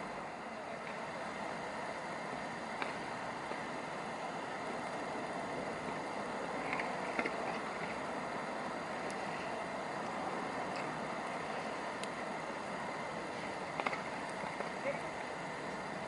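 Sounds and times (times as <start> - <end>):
distant traffic: 0.0 - 16.0
faint ticks: 12.0 - 12.2.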